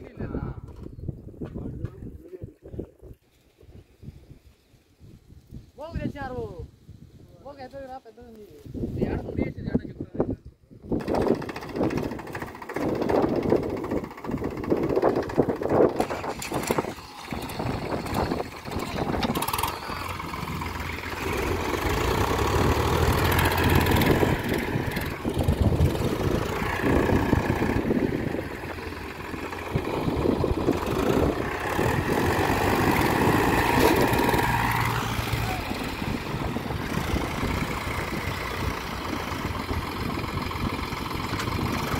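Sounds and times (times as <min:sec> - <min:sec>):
tractor diesel engine revving: 0:11.0 - 0:41.9.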